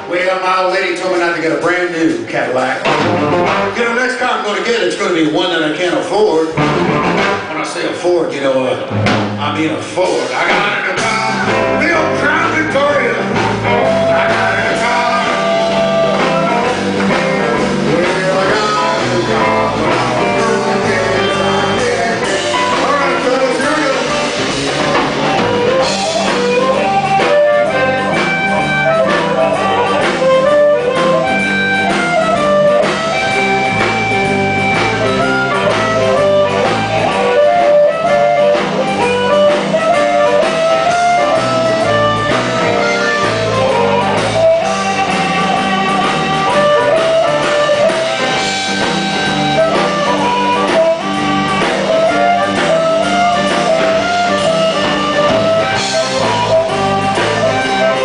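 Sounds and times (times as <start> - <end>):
bass: 0.0 - 58.0
drums: 0.0 - 58.0
lead guitar solo: 1.6 - 7.6, 10.2 - 58.0.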